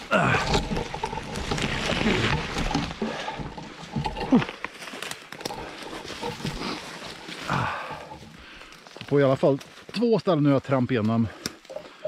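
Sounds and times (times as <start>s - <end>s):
person grunting and breathing: 7.4s - 8.7s.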